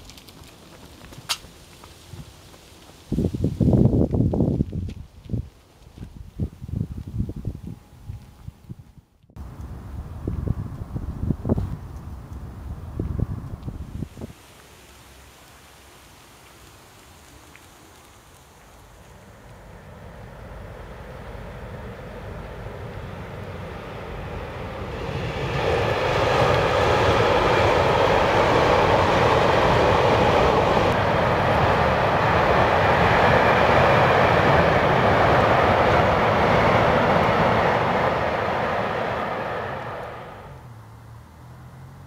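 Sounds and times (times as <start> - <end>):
train passing: 9.4 - 41.9.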